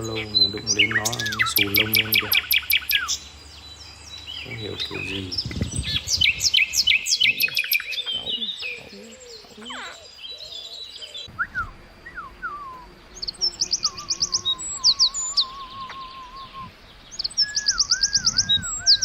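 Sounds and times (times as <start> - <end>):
small bird chirping: 0.0 - 19.0
wavering whistle-like tone: 11.3 - 12.9, 13.5 - 16.7, 17.3 - 19.0.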